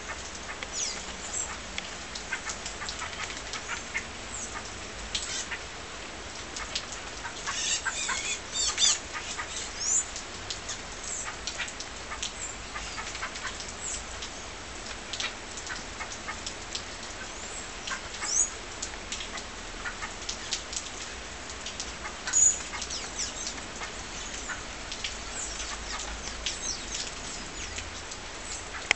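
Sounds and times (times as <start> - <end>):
small birds chirping: 0.1 - 1.6, 6.6 - 14.6, 17.2 - 18.6, 22.0 - 28.9.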